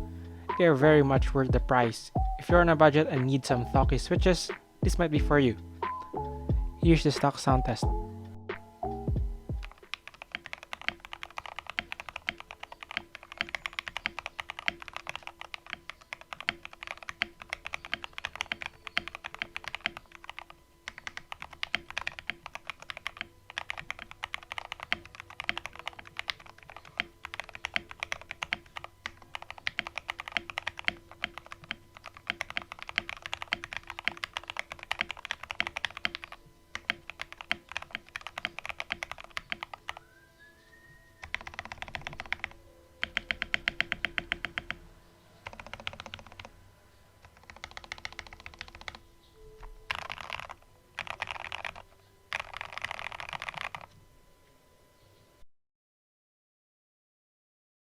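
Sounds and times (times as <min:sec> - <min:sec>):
typing on mechanical keyboard: 0:09.6 - 0:40.0, 0:41.2 - 0:44.8, 0:45.4 - 0:46.5, 0:47.2 - 0:49.0, 0:49.9 - 0:53.9.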